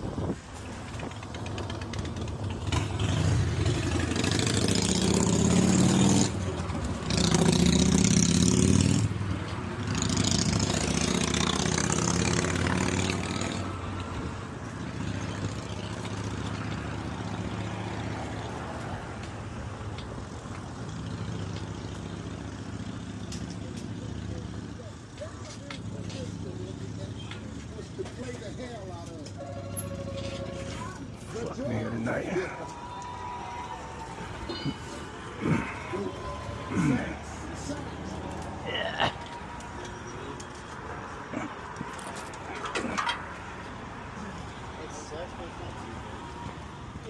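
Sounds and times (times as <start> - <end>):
vehicle engine revving: 1.1 - 19.0, 34.5 - 38.9.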